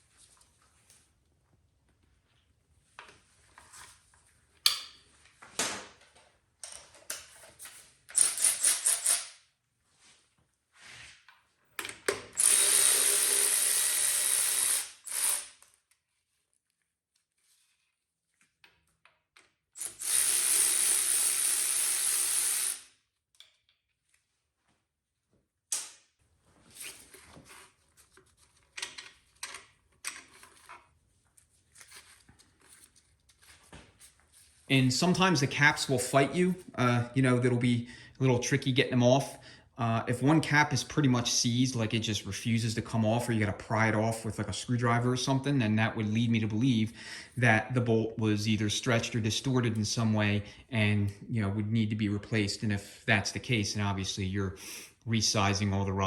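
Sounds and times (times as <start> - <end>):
handheld power tool running: 12.4 - 15.6, 19.8 - 22.9.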